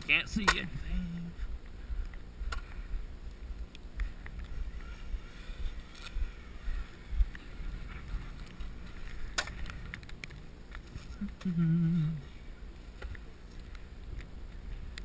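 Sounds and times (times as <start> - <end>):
low rumble on microphone: 0.0 - 15.0.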